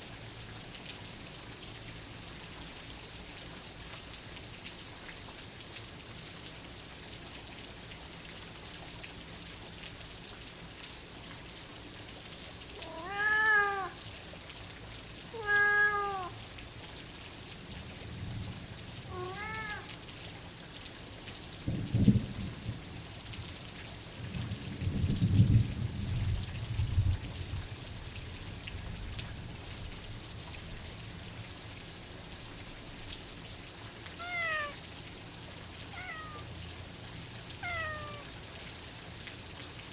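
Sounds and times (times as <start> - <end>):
steady rain: 0.0 - 39.9
cat meowing: 12.8 - 14.0, 15.3 - 16.4, 19.1 - 19.9, 34.2 - 34.8, 35.9 - 36.5, 37.6 - 38.3
low rolls of thunder: 21.6 - 23.0, 24.2 - 27.7.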